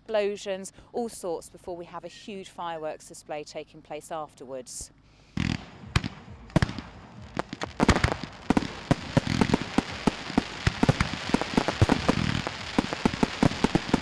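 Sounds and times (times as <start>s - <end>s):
fireworks bangs and crackle: 5.4s - 14.0s.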